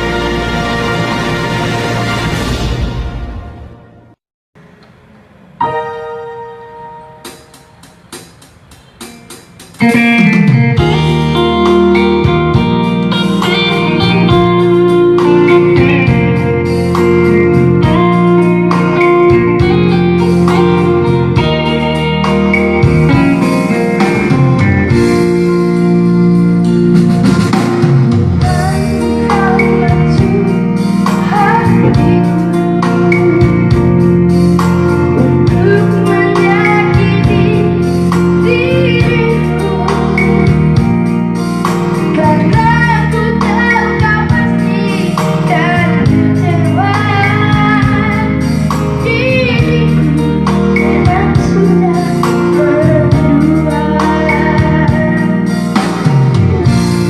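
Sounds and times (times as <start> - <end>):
band with guitar: 0.0 - 4.2, 5.6 - 57.0
child singing: 28.4 - 33.5, 35.2 - 40.4, 42.1 - 48.4, 49.0 - 55.3.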